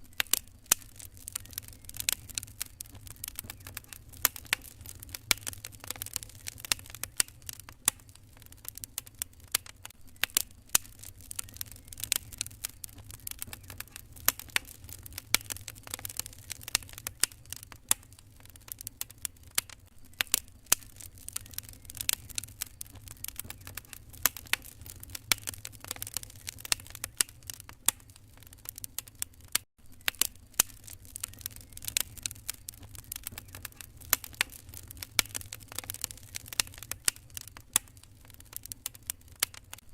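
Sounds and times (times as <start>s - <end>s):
low steady rumble: 0.0s - 28.6s
fire crackling in fireplace: 0.0s - 39.9s.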